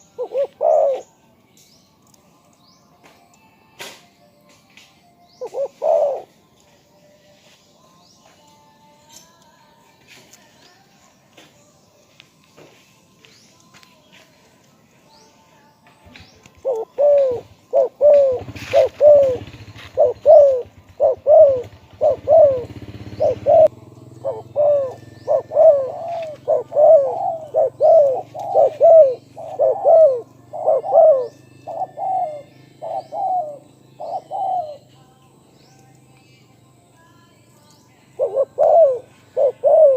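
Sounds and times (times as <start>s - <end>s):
dove cooing: 0.0s - 1.2s, 5.3s - 6.5s, 16.1s - 34.9s, 38.0s - 39.9s.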